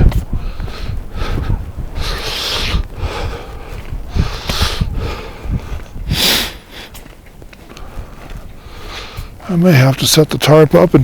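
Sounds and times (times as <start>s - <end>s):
wind buffeting microphone: 0.0s - 11.0s
person breathing heavily: 0.3s - 7.0s, 7.6s - 9.5s.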